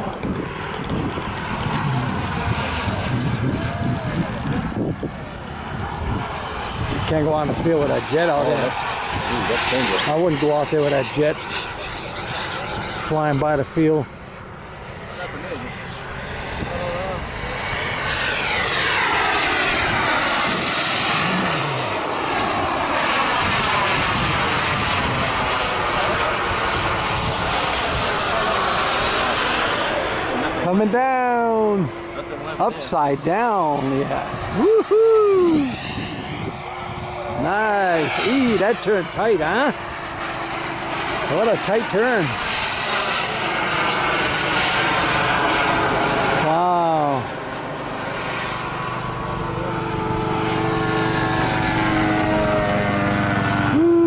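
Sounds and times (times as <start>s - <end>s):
wind on microphone: 0.0s - 10.6s, 15.5s - 30.4s, 33.2s - 42.6s
model jet turbine rushing: 0.0s - 54.0s.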